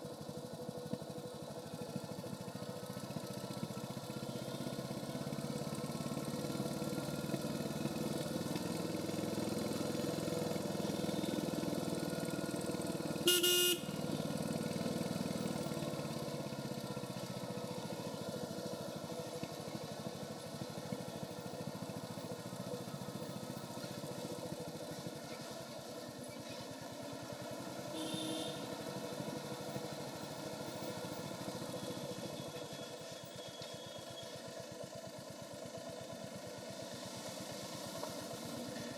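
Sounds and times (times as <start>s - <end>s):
motorcycle engine running: 0.0s - 38.9s
vehicle horn honking: 13.2s - 14.1s, 27.9s - 28.8s.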